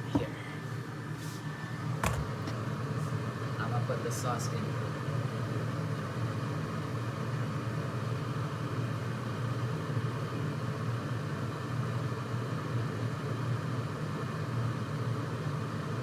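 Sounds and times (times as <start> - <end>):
low machine hum: 0.0 - 12.4.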